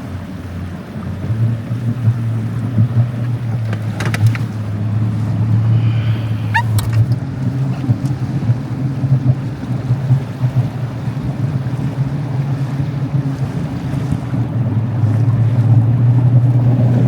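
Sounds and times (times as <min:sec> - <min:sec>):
motor droning: 0:01.9 - 0:07.9.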